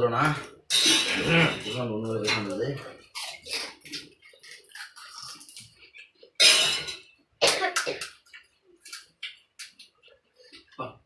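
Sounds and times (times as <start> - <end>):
person coughing hard: 7.4 - 8.1.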